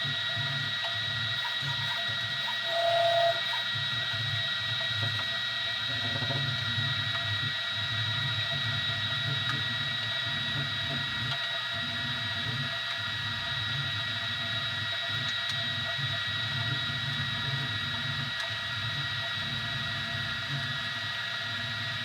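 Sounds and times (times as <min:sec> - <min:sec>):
three d printer motors whining: 0:00.0 - 0:04.4
short louder tone: 0:02.6 - 0:03.6.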